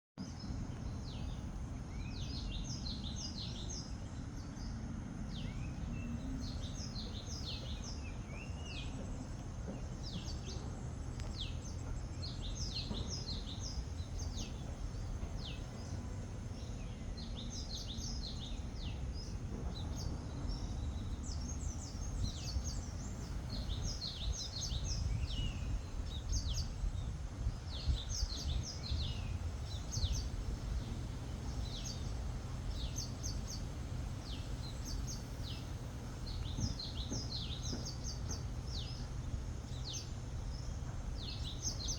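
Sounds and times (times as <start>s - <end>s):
low background rumble: 0.2s - 41.9s
small birds chirping: 0.2s - 41.9s.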